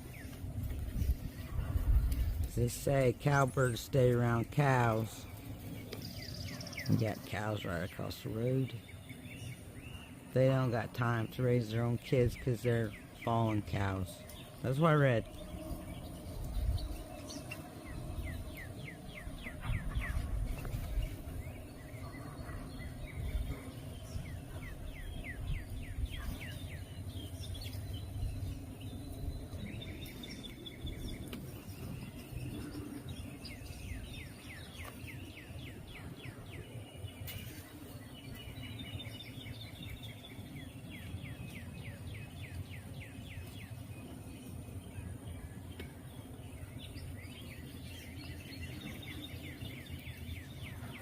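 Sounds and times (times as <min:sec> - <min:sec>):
wind rumble on microphone: 0:00.0 - 0:07.5, 0:13.8 - 0:45.5
songbirds singing: 0:00.0 - 0:51.0.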